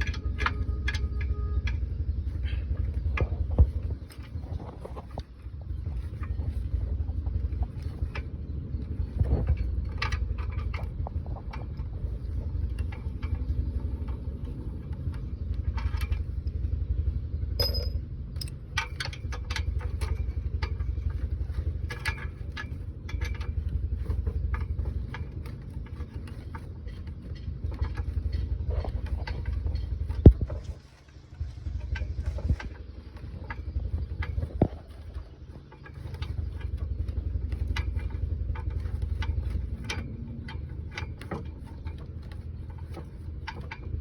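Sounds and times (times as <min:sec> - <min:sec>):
low steady rumble: 0:00.0 - 0:44.0
metal tools clinking: 0:17.6 - 0:43.9.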